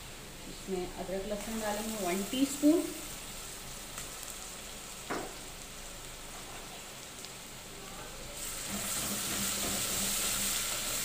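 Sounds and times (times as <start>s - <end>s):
onions sizzling in hot oil: 0.0s - 11.0s
knock: 5.1s - 5.4s.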